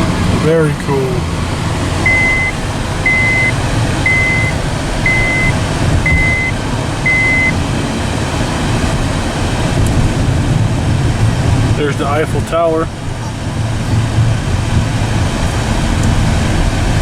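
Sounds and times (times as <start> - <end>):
low vehicle rumble: 0.0 - 17.0
high electronic beeps: 2.0 - 7.6.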